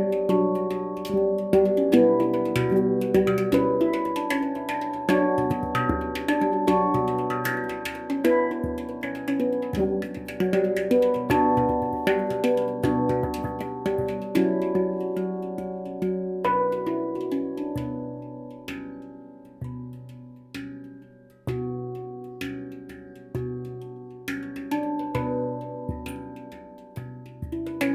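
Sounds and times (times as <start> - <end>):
handpan bell-like notes: 0.0 - 27.9.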